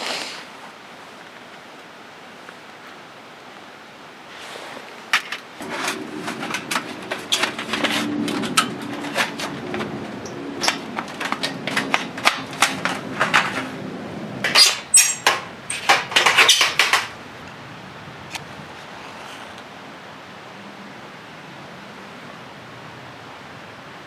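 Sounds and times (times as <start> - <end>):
faint steady hiss: 0.0 - 8.7, 13.3 - 24.0
hard objects knocking: 5.6 - 17.2.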